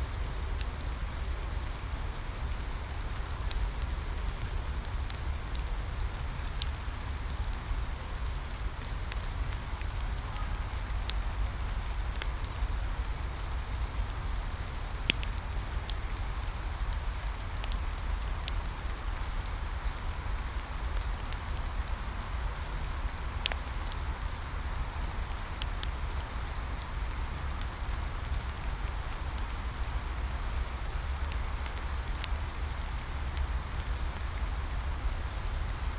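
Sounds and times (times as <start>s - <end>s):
rain falling: 0.0s - 35.9s
wood fire crackling and popping: 0.3s - 35.9s.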